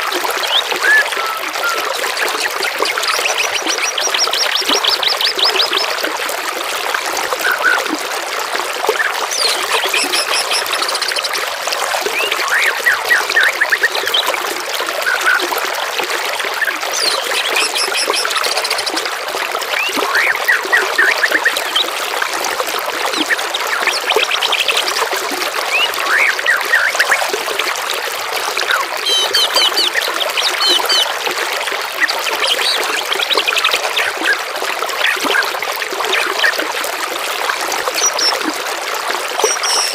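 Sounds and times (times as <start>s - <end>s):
trickling water: 0.0s - 39.9s
songbirds singing: 9.0s - 11.3s, 16.6s - 18.9s, 28.7s - 31.1s, 39.4s - 39.9s.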